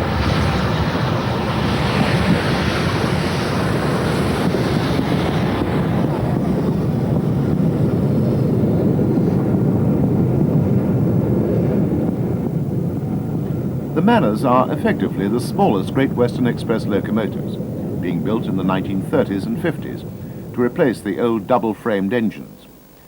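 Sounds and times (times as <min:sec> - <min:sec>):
wind buffeting microphone: 0:00.0 - 0:22.9
steam train running: 0:13.9 - 0:22.7.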